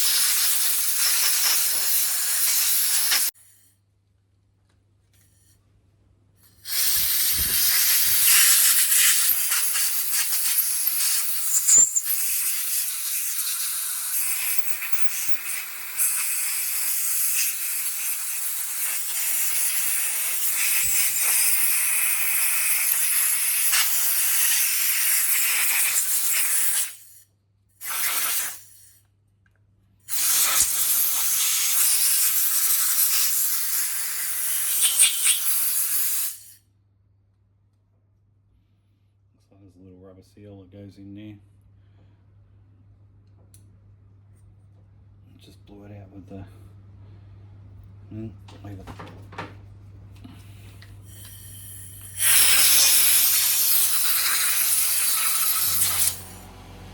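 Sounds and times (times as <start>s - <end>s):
compressed air hissing: 0.0s - 3.4s, 6.4s - 27.2s, 27.8s - 29.0s, 30.1s - 36.6s, 50.3s - 56.9s.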